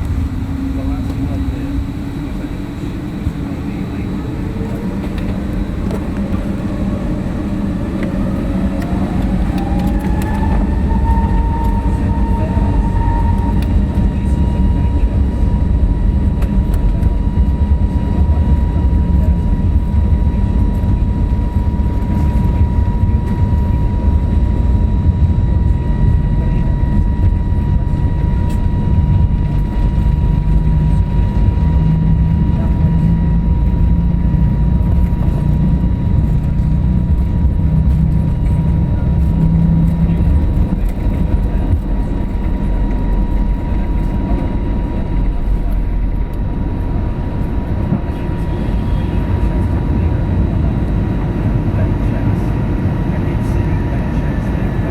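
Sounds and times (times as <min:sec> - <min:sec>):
airplane cabin engine roar: 0:00.0 - 0:54.9
thin steady whine: 0:00.0 - 0:54.9.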